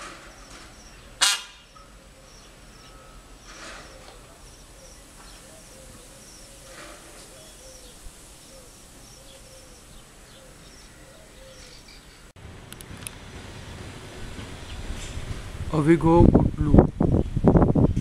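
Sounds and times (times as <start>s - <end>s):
low repeated bird call: 0.0s - 12.3s.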